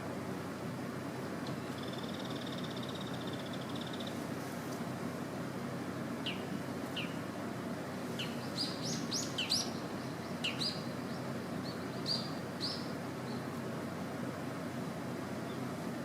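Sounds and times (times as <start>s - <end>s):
low background hiss: 0.0s - 16.0s
birds chirping: 6.2s - 7.2s, 8.1s - 13.6s.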